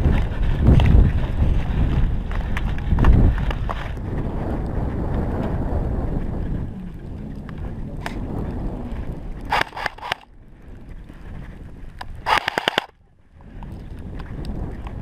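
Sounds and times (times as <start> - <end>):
wind rumble on microphone: 0.0 - 15.0
airsoft guns rapid firing: 9.5 - 10.2, 12.3 - 12.9.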